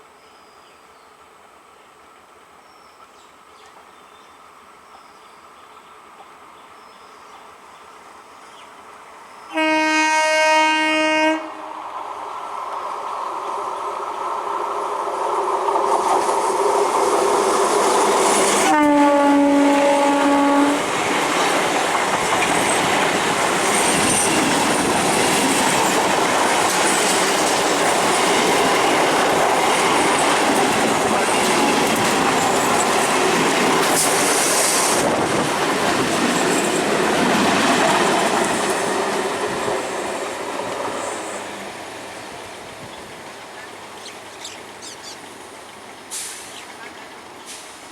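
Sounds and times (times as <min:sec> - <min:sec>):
train horn blast: 0:09.5 - 0:11.8, 0:18.5 - 0:21.0
train wheels clattering: 0:19.6 - 0:41.4.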